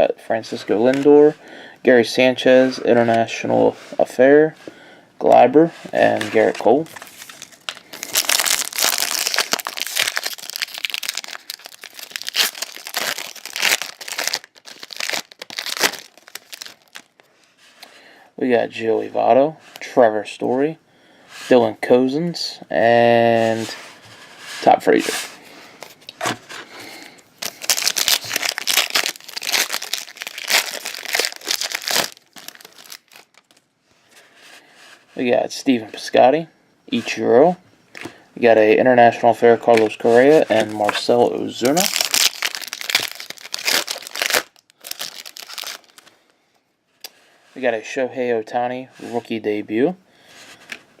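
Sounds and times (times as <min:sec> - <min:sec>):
card pack wrapper crinkling and tearing: 0:06.2 - 0:17.2, 0:27.4 - 0:33.6, 0:39.7 - 0:46.1.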